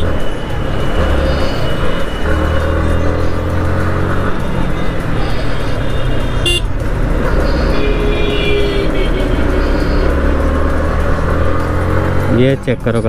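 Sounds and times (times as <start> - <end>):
motorcycle engine running: 0.0 - 13.0
vehicle horn tooting: 5.1 - 10.6.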